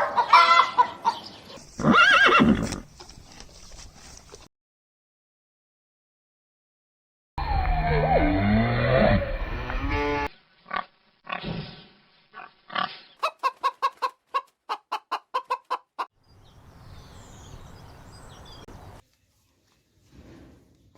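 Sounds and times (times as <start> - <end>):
chickens clucking: 0.0 - 1.6, 13.2 - 16.1.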